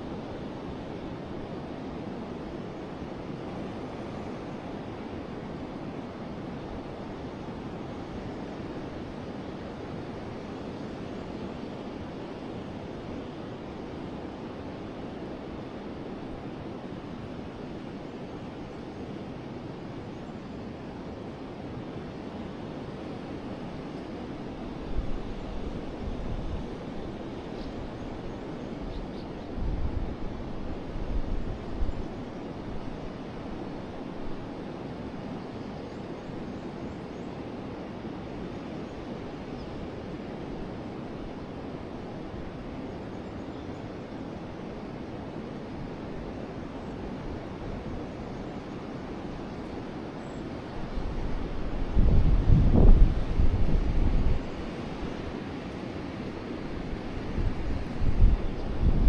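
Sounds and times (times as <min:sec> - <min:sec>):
wind buffeting microphone: 0:50.9 - 0:54.6, 0:56.8 - 0:59.0.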